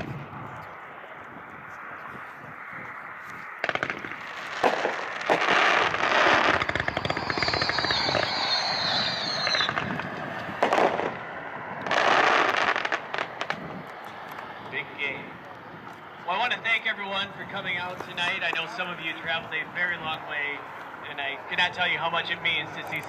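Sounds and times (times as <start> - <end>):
fireworks crackling bursts: 3.4 - 15.4, 16.0 - 23.0
high falling whistle: 6.3 - 10.1.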